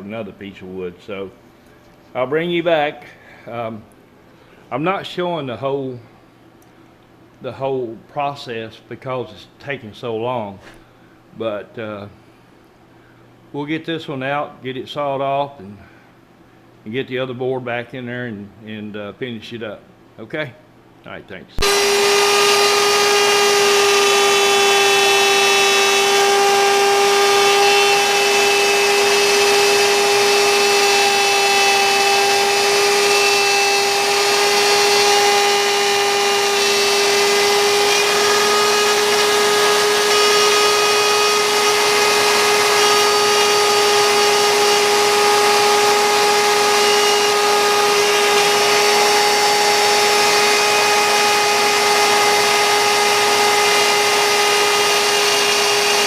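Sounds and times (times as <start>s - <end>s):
router spindle whine: 21.6s - 56.0s.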